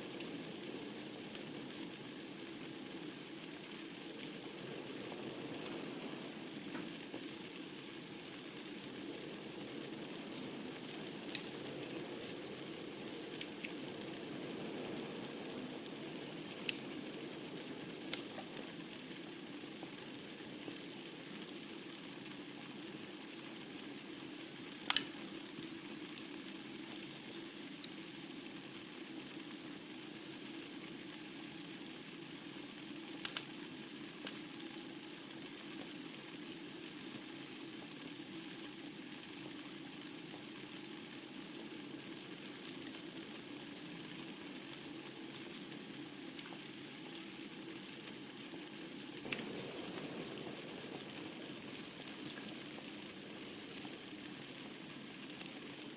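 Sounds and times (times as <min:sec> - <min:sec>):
fire hissing: 0:00.0 - 0:26.4, 0:41.3 - 0:55.9
fire crackling and popping: 0:00.0 - 0:31.4, 0:32.1 - 0:55.9.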